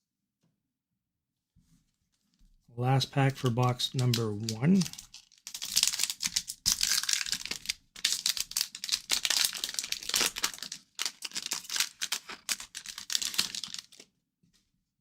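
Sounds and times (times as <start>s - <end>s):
foil wrapper tearing and crinkling: 4.0s - 14.0s.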